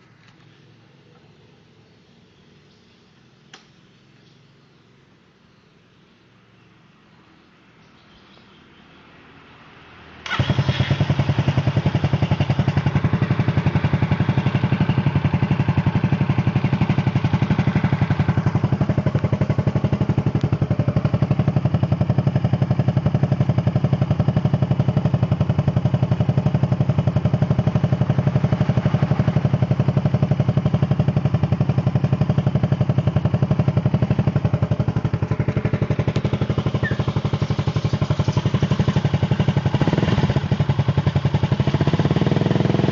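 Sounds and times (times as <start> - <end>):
scooter engine idling: 10.2 - 42.9.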